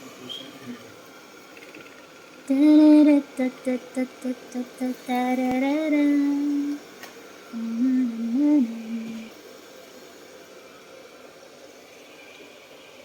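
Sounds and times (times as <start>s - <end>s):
woman humming a tune: 7.5s - 9.3s.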